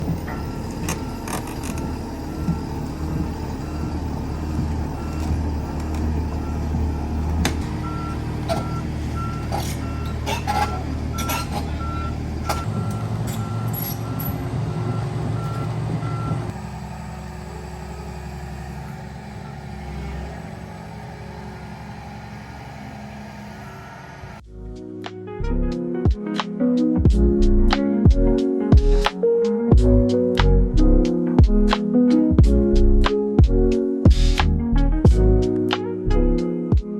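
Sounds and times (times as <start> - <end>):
backup alarm beeping: 0.0 - 16.5
knocks and clanks: 0.0 - 16.5
heavy diesel machine running: 0.0 - 24.4.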